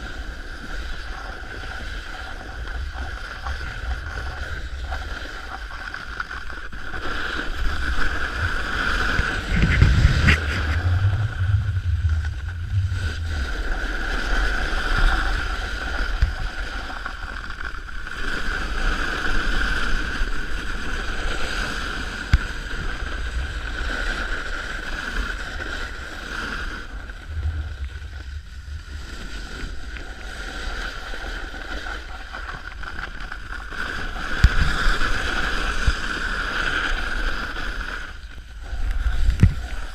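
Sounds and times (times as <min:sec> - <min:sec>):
snowboard scraping icy snow: 0:00.0 - 0:39.9
wind buffeting microphone: 0:07.4 - 0:17.2, 0:20.1 - 0:32.4.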